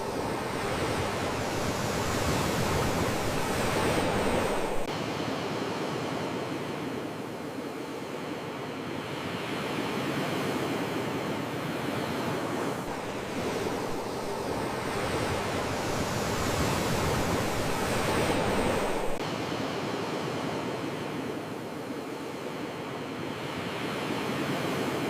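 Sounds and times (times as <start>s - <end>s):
sea waves washing onto shore: 0.0s - 4.9s, 11.8s - 19.2s.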